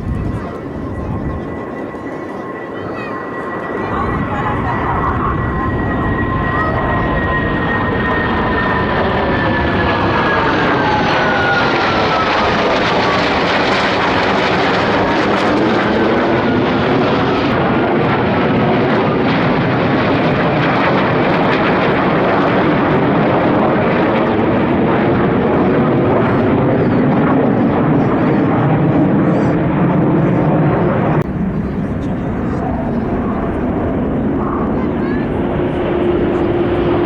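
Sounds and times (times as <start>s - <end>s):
engine whine gliding down: 0.0s - 17.8s, 31.2s - 37.0s
military jet flying overhead: 0.0s - 37.0s.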